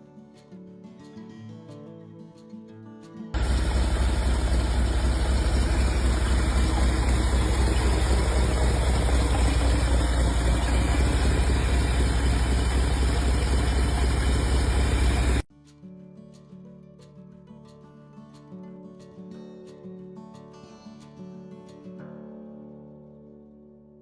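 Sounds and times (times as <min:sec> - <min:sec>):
truck engine idling: 0:03.4 - 0:15.4.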